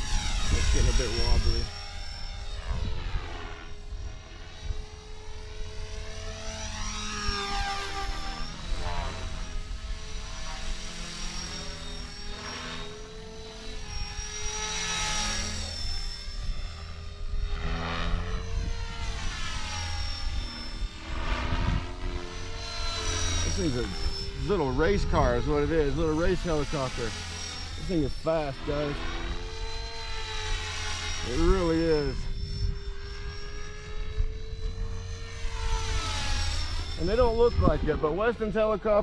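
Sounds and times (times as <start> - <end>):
rc helicopter motor whine: 0.0 - 39.0.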